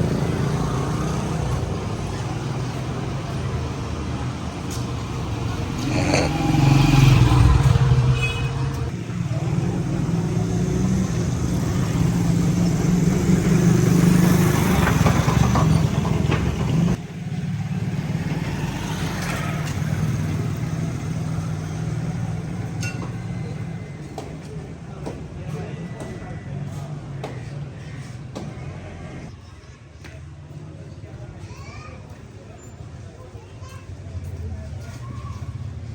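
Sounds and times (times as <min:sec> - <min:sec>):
vehicle engine humming: 0:00.0 - 0:24.6.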